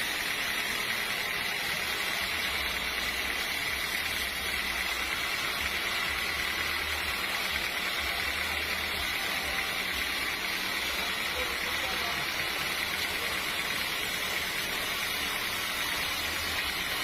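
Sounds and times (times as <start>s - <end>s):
machinery high whine: 0.0s - 17.0s
sawmill machinery low hum: 0.0s - 17.0s.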